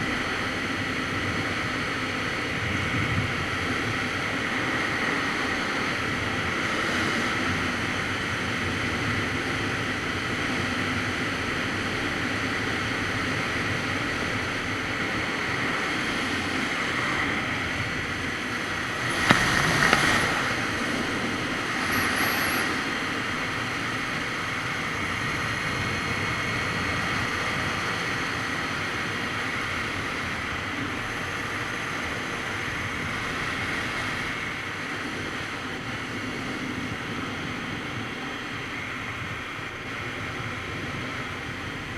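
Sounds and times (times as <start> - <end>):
wind rushing over microphone: 15.0 - 28.8
motorcycle engine running: 16.2 - 27.2.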